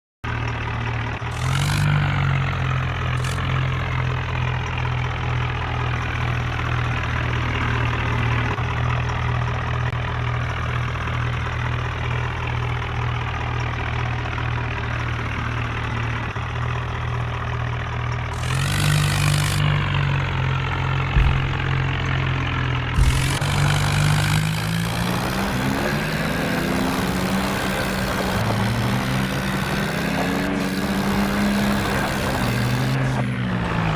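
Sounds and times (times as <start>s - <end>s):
diesel tractor engine idling and revving: 0.2s - 33.9s
sharp knocks: 21.1s - 22.2s, 23.0s - 23.7s.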